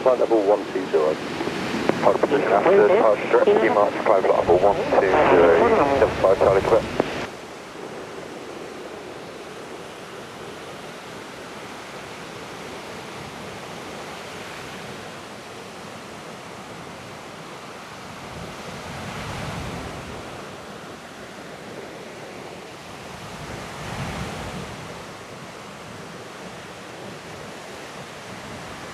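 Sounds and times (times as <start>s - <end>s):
distant jet engine roar: 0.0s - 11.9s.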